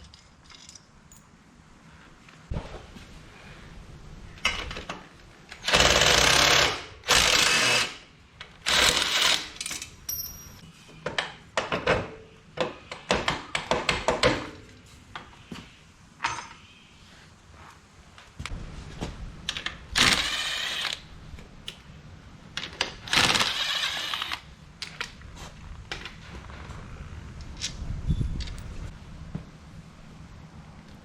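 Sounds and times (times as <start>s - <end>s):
impact wrench bursts: 5.6s - 8.0s, 8.7s - 9.6s, 20.0s - 21.0s, 23.1s - 24.4s.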